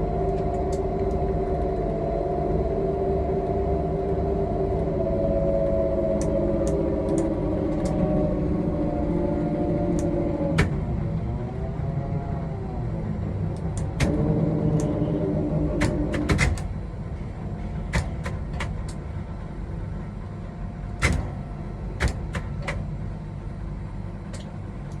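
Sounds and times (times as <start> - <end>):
motor whine: 0.0 - 18.5
low machinery rumble: 0.0 - 25.0.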